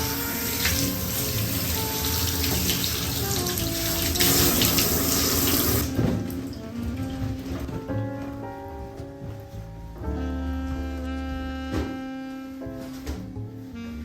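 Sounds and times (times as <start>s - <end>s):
running water splashing: 0.0s - 7.5s
background music: 0.0s - 14.0s.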